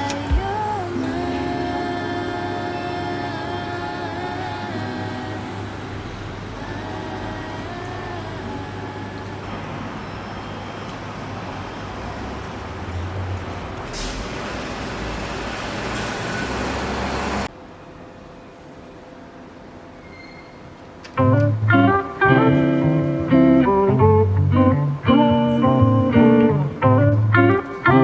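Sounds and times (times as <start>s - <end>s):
traffic rumble: 0.0s - 17.5s
brief hiss: 13.9s - 14.7s.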